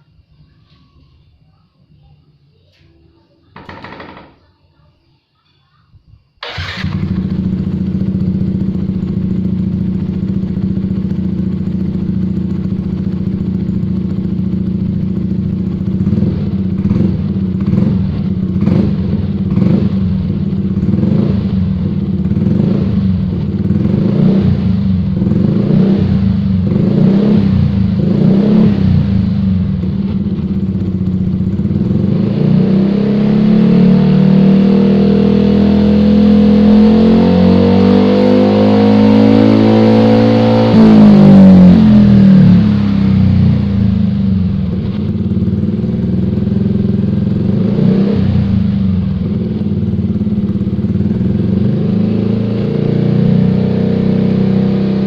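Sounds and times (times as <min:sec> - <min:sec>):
scooter engine idling: 0:06.4 - 0:25.6, 0:27.5 - 0:32.3, 0:41.6 - 0:52.0
scooter engine throttle blips: 0:06.4 - 0:32.9.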